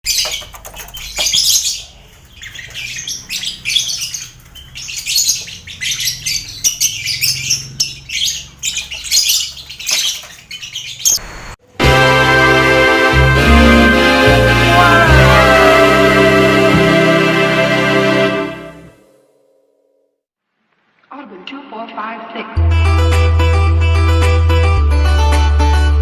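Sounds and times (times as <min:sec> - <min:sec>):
birds chattering and chirping: 0:00.0 - 0:11.6.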